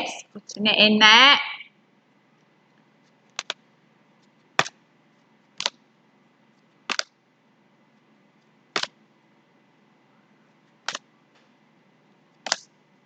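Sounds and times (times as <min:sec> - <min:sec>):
sharp clicks: 0:12.4 - 0:12.7.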